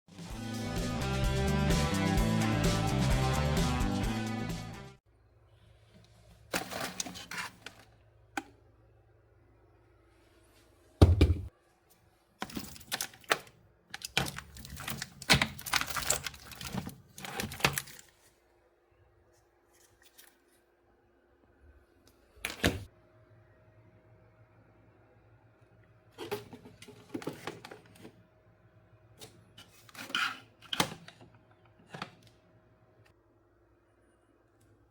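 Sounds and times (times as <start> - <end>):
objects clicking and scraping: 6.5 - 8.5, 12.4 - 18.2.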